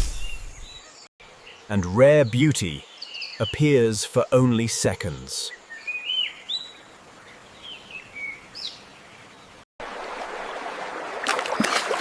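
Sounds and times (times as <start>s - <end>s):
bird chirps: 5.5s - 8.9s
stream water rushing: 9.8s - 12.0s.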